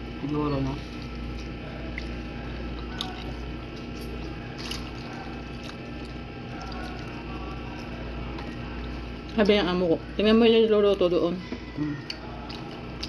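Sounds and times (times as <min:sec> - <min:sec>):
person chewing: 0:01.0 - 0:09.4, 0:11.7 - 0:13.0.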